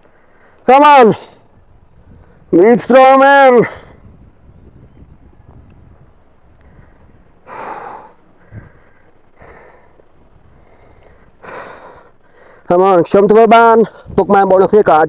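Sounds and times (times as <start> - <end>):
man exhaling heavily: 7.5 - 10.0.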